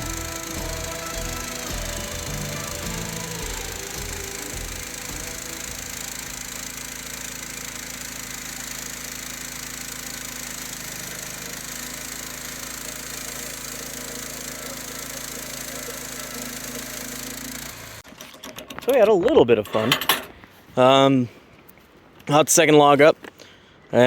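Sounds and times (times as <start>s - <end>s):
band sawmill cutting log: 0.0s - 18.0s.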